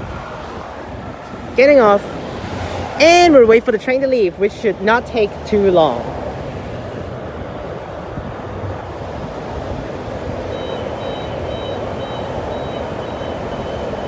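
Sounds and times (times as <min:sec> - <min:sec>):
electric train rumble: 0:06.0 - 0:14.0
two-tone warning beep: 0:10.3 - 0:14.0.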